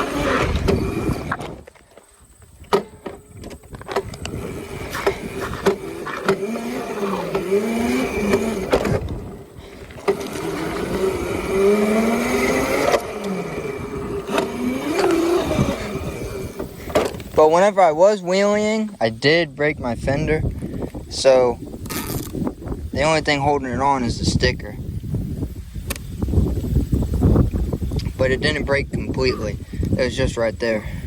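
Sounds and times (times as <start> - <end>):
electric dirt bike motor whining: 0.0 - 1.8, 2.7 - 17.5, 21.8 - 22.7
clicks and knocks from bike: 0.4 - 6.5.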